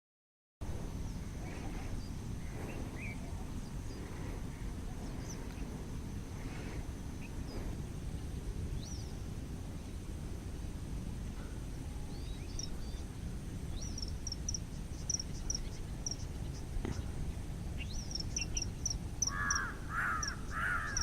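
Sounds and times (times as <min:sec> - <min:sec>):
harsh bird calls: 0:17.8 - 0:21.0.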